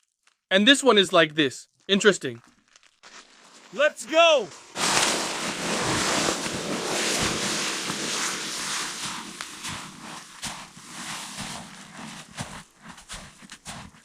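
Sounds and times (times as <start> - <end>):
footsteps crunching in snow: 2.5 - 14.0
rushing hiss: 4.6 - 11.6.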